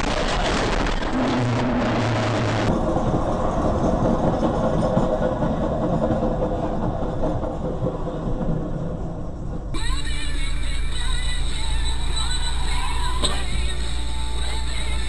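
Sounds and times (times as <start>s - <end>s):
loud rushing noise: 0.0s - 3.6s
faint steady hum: 9.8s - 15.0s.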